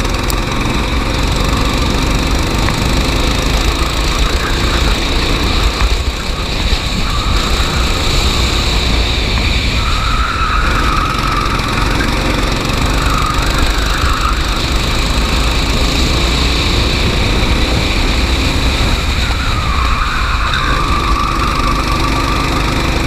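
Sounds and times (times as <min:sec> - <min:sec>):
go-kart engine running: 0:00.0 - 0:23.0.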